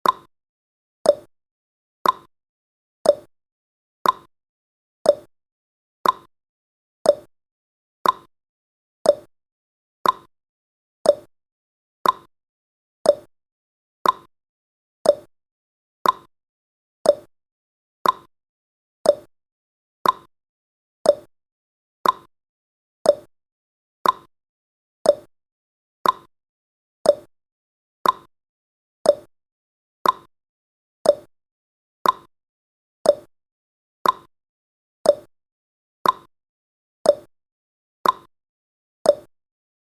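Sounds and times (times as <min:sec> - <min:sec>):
clock ticking: 0:02.0 - 0:02.3, 0:04.0 - 0:04.3, 0:06.0 - 0:06.3, 0:08.0 - 0:08.3, 0:10.0 - 0:10.3, 0:12.0 - 0:12.3, 0:14.0 - 0:14.3, 0:15.1 - 0:15.3, 0:16.0 - 0:16.3, 0:18.0 - 0:18.3, 0:20.0 - 0:20.3, 0:21.1 - 0:21.3, 0:22.0 - 0:22.3, 0:24.0 - 0:24.3, 0:26.0 - 0:26.3, 0:28.0 - 0:28.3, 0:29.1 - 0:29.3, 0:30.0 - 0:30.3, 0:31.1 - 0:31.3, 0:32.0 - 0:32.3, 0:33.1 - 0:33.3, 0:34.0 - 0:34.3, 0:35.1 - 0:35.3, 0:36.0 - 0:36.3, 0:38.0 - 0:38.3, 0:39.1 - 0:39.3.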